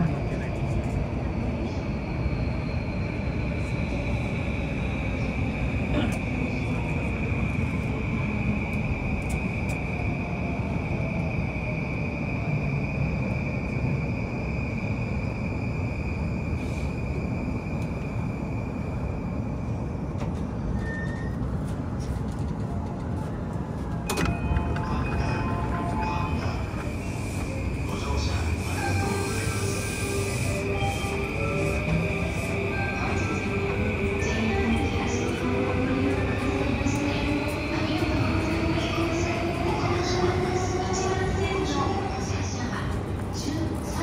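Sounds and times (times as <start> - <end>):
train rumble: 0.0 - 44.0.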